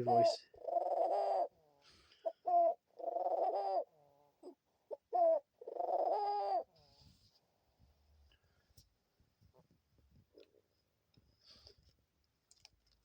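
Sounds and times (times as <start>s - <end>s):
dove cooing: 0.0s - 6.9s.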